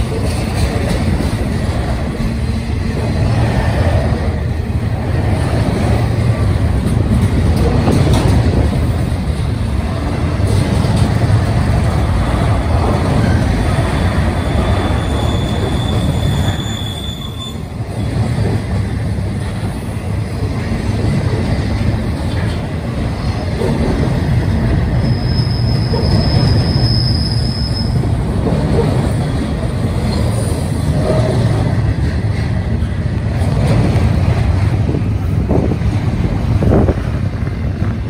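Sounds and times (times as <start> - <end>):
steel wheels rumbling on rail: 0.0 - 38.0
thin wheel squeal: 14.0 - 17.6, 25.0 - 28.0.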